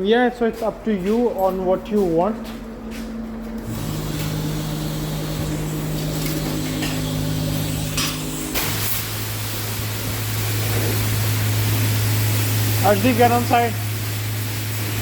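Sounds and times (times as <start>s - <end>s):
pump machinery humming: 0.7s - 15.0s
hiss of water spray: 7.1s - 15.0s.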